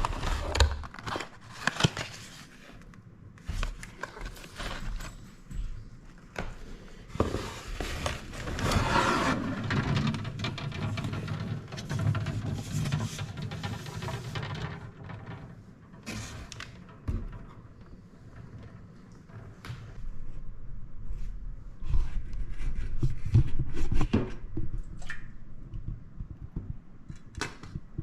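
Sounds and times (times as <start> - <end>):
packaging rustling and crinkling: 0.0 - 2.9.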